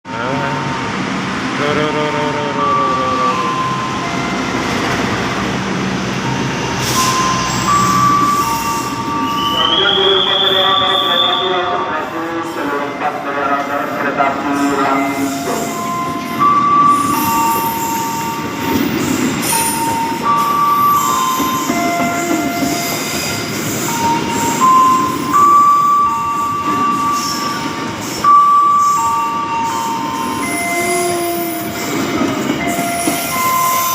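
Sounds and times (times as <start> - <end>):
train rumbling on rails: 0.1 - 33.9
high wheel squealing: 6.2 - 11.6, 14.4 - 33.9.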